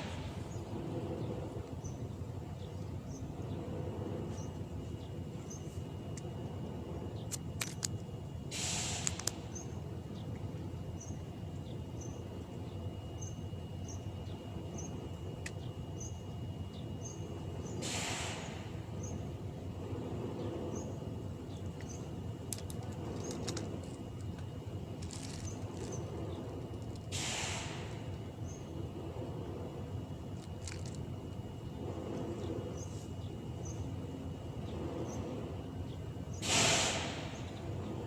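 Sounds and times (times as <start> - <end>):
steady low rumble: 0.0 - 38.0
brief hissing bursts: 8.5 - 9.2, 17.8 - 18.7, 27.1 - 28.0, 36.4 - 37.4.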